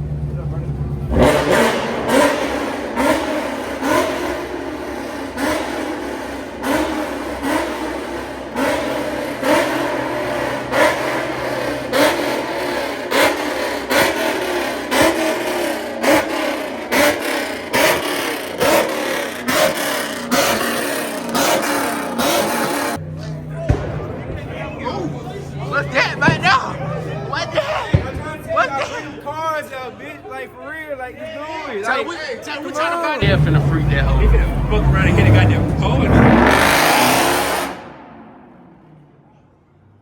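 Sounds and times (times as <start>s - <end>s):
car engine revving in blips: 0.0s - 24.3s, 33.2s - 39.2s.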